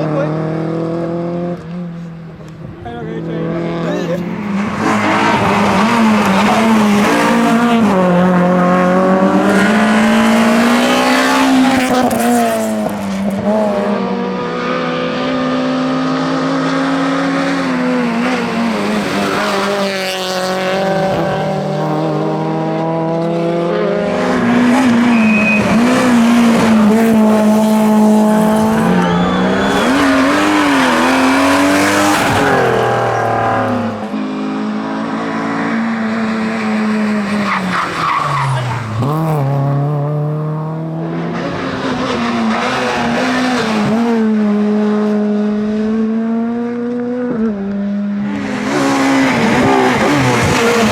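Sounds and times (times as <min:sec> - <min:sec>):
rally car engine revving: 0:00.0 - 0:50.9.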